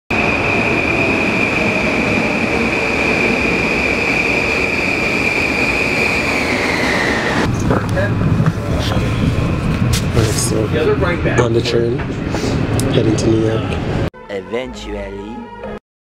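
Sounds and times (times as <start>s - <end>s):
train cars rumbling: 0.1s - 14.1s
train wheels squealing: 0.2s - 7.5s.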